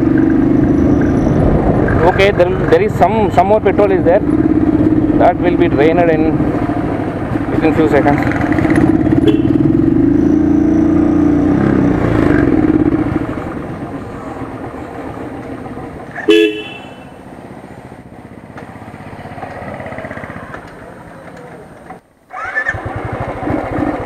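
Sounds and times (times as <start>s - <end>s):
motorcycle engine running: 0.0s - 21.8s, 22.4s - 24.0s
street noise: 0.0s - 24.0s
short vehicle horn toot: 9.2s - 9.7s, 16.2s - 17.1s.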